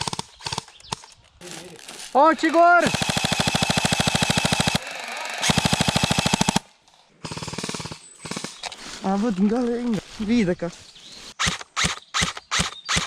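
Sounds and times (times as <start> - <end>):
airsoft rifle firing bursts: 0.0 - 1.1, 2.2 - 8.7, 11.4 - 13.0.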